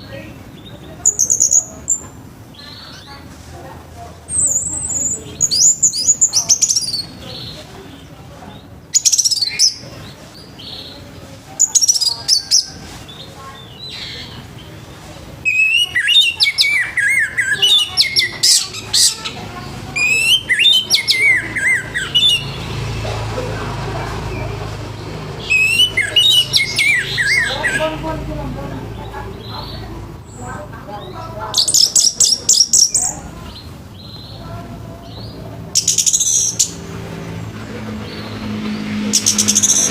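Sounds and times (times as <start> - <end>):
bird singing whistled notes: 15.4 - 19.3, 20.0 - 22.6, 25.4 - 27.8
low rumbling noise: 17.3 - 39.9.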